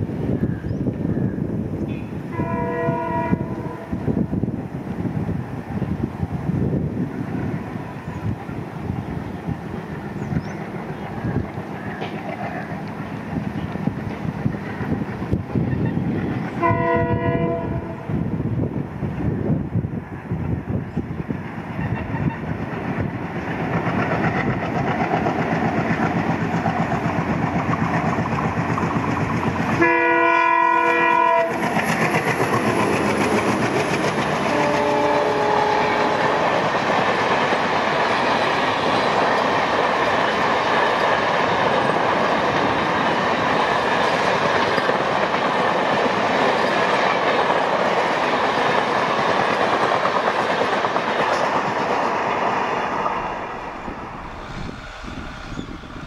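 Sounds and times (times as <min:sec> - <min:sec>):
diesel locomotive running: 0:00.0 - 0:56.0
multi-tone train horn: 0:01.9 - 0:04.3, 0:16.5 - 0:18.3, 0:29.8 - 0:31.8, 0:34.4 - 0:36.5
wheels clacking over rail joints: 0:11.7 - 0:14.8, 0:31.4 - 0:35.1.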